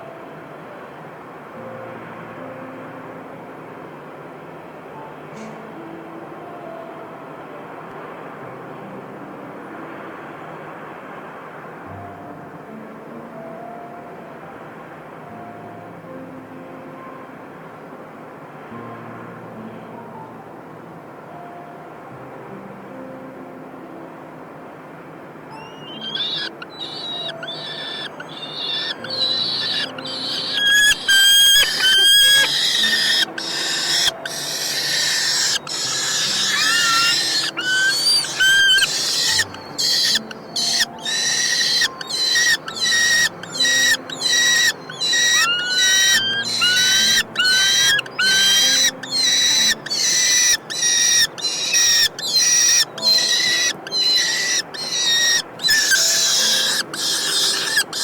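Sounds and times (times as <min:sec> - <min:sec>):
falcon chicks screeching: 0:25.5 - 0:58.0
rising whistled notes: 0:25.6 - 0:58.0.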